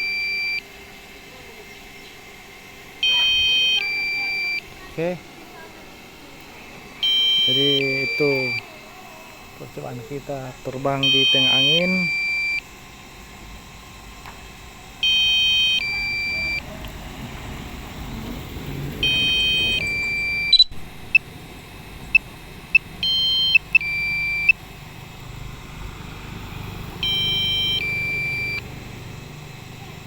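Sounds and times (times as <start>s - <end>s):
two-part warning beeps: 0.0s - 0.6s, 3.0s - 4.7s, 7.0s - 8.7s, 10.7s - 12.7s, 15.0s - 16.7s, 19.0s - 21.3s, 22.1s - 24.6s, 27.0s - 28.8s
short electronic blips: 19.0s - 21.3s, 22.1s - 24.6s, 27.0s - 29.4s.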